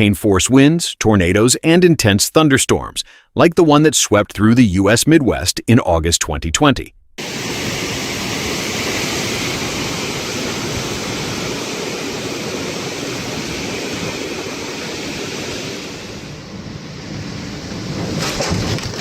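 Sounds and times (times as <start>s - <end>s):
strong wind rushing: 7.2s - 19.0s.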